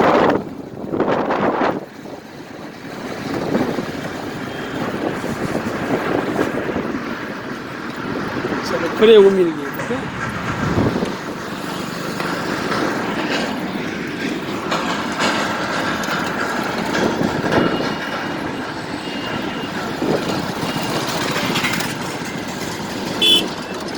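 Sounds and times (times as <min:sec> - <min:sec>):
traffic rumbling on a bridge: 0:00.0 - 0:23.9.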